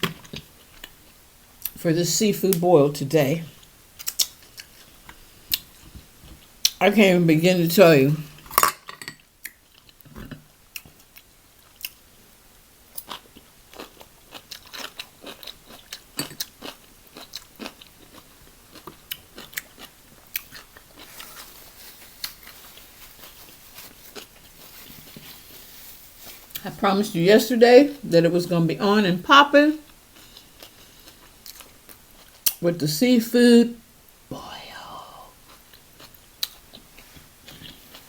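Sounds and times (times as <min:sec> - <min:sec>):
chewing: 0:09.4 - 0:12.0, 0:12.9 - 0:25.5, 0:30.1 - 0:32.6, 0:35.5 - 0:38.0.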